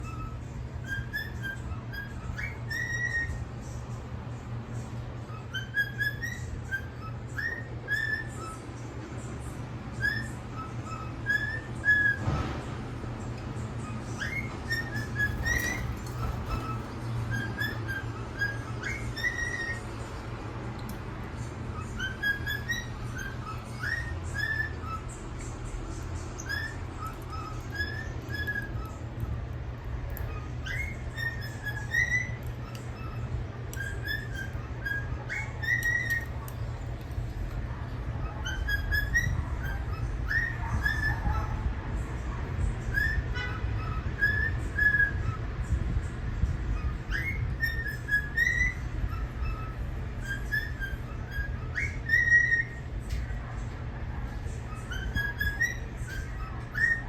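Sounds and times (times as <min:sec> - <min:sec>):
steady low hum: 0:00.0 - 0:57.0
whistled tune: 0:05.4 - 0:08.6, 0:10.0 - 0:12.4, 0:14.1 - 0:19.8.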